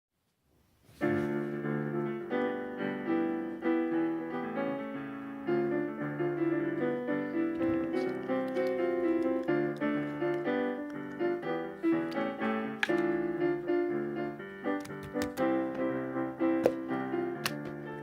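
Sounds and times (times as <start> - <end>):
gentle piano music: 0.9 - 18.0.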